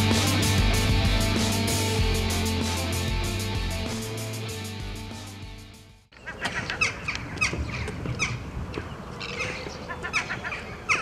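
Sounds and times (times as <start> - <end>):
bird squawking: 6.2 - 8.4, 9.2 - 11.0.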